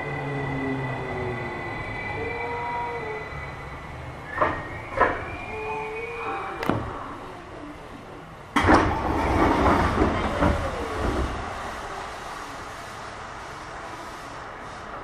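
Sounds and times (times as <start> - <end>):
faint train whine: 0.0 - 15.0
loud rush of rolling noise: 6.6 - 15.0.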